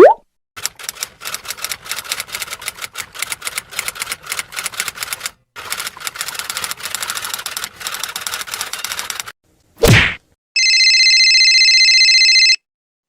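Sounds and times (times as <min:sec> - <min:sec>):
typewriter keys clacking: 0:00.6 - 0:09.3.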